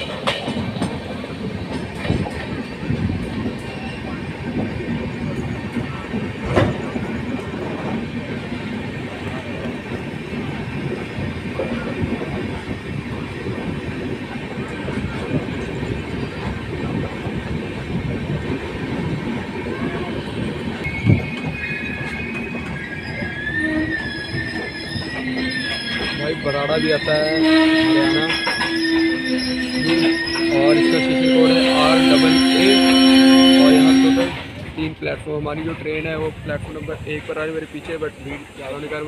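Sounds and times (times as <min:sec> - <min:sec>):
train rumbling: 0:00.0 - 0:39.0
wheels squealing: 0:19.6 - 0:34.6.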